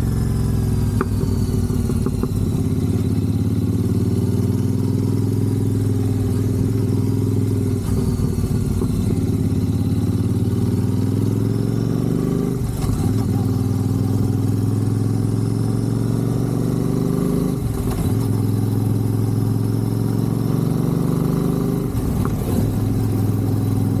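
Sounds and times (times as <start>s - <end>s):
motorcycle exhaust note: 0.0s - 24.0s.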